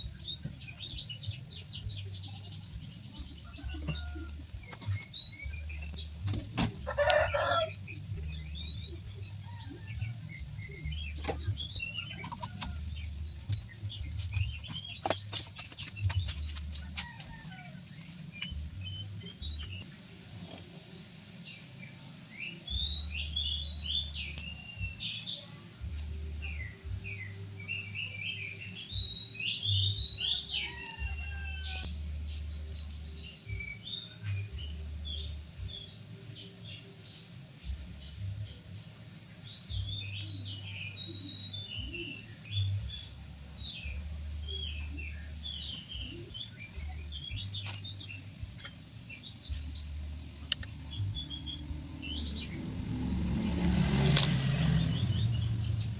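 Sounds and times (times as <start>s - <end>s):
birds chirping and calling: 0.0s - 55.9s.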